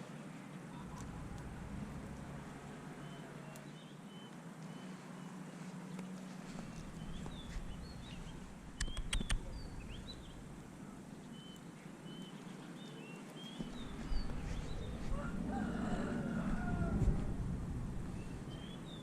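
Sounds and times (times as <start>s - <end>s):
low rumble: 0.7s - 3.6s, 6.5s - 11.4s, 13.6s - 19.0s
birds chirping and whistling: 6.7s - 10.5s, 11.2s - 15.2s
sharp clicks: 8.6s - 10.4s.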